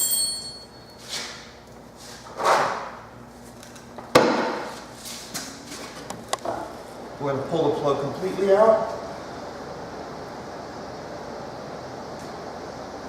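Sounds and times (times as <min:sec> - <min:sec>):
metallic clink with ring: 0:00.0 - 0:01.0
heavy knock on wooden boards: 0:04.1 - 0:04.6.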